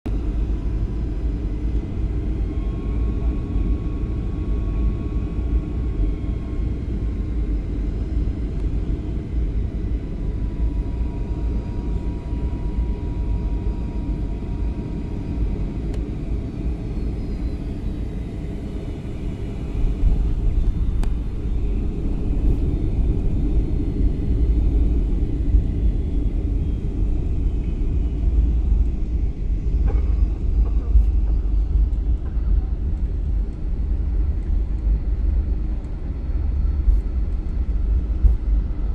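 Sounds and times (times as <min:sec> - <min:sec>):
airliner engine and airflow rumble: 0:00.1 - 0:38.9.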